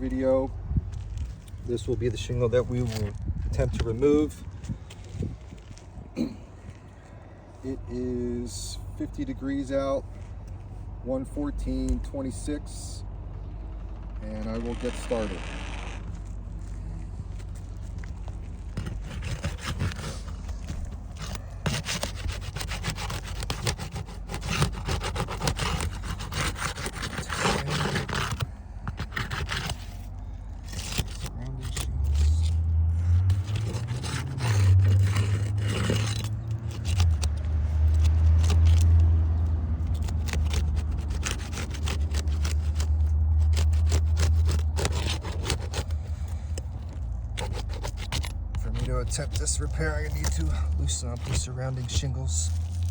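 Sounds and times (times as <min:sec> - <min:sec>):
roof shingles being scraped: 0:01.1 - 0:06.8, 0:13.8 - 0:52.9
low rumble: 0:13.0 - 0:19.1.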